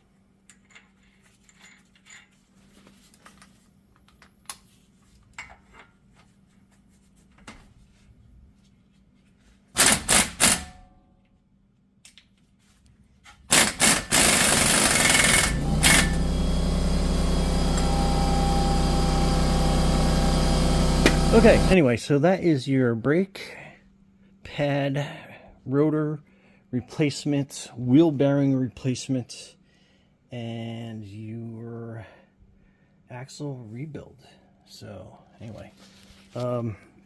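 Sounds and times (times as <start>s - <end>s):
impact wrench bursts: 9.8s - 10.8s, 13.5s - 21.8s
machine drone with low hum: 14.2s - 21.8s.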